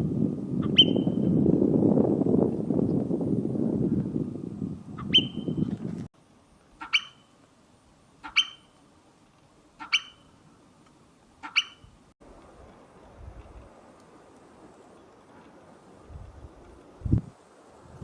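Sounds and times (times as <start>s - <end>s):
marmot alarm whistles: 0.7s - 1.2s, 5.0s - 5.6s, 6.8s - 7.2s, 8.3s - 8.7s.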